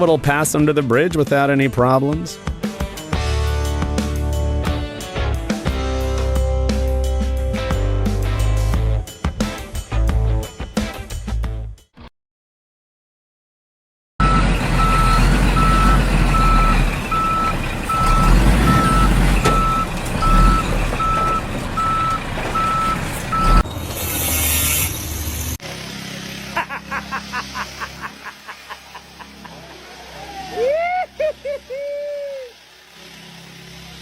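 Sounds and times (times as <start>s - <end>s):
reversing alarm beeping: 14.2s - 24.9s
truck engine rumbling: 14.2s - 30.2s.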